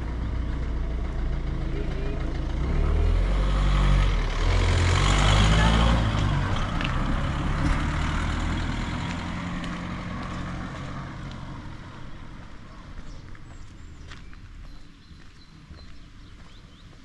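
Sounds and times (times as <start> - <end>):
vehicle engine passing by: 0.0 - 17.0.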